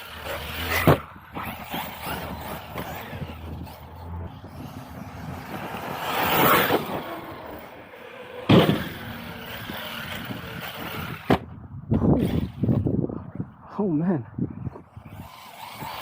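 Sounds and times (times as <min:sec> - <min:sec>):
electric motor whining: 0:00.0 - 0:13.0, 0:14.9 - 0:16.0
sharp loud thump: 0:08.5 - 0:08.9.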